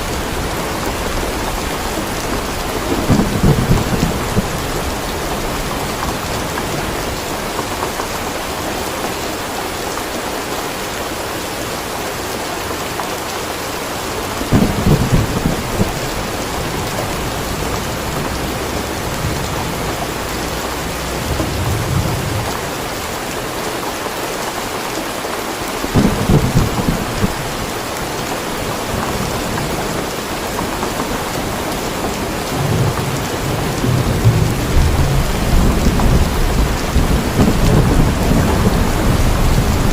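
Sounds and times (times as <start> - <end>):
thunder rumbling: 0.0 - 8.4, 14.1 - 23.1, 25.9 - 39.9
steady rain falling: 0.0 - 39.9.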